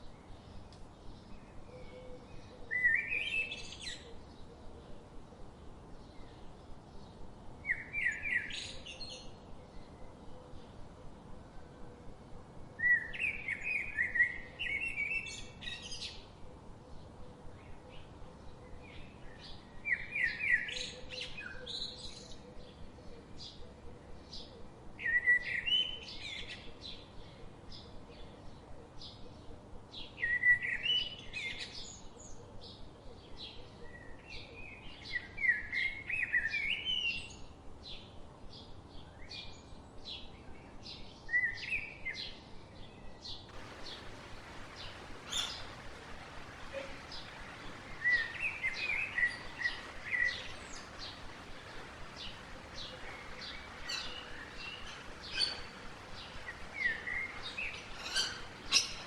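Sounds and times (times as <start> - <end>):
faint background hiss: 0.0 - 59.0
songbirds chirping and singing: 43.4 - 59.0.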